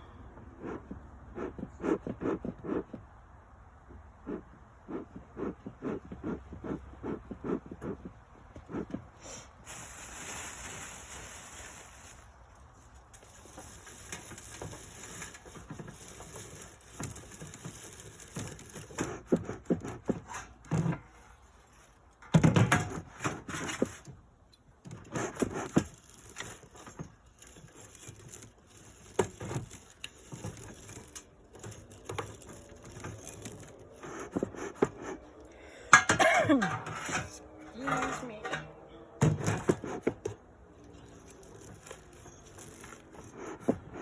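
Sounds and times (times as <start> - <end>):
rustling: 4.3 - 22.2, 39.7 - 44.0.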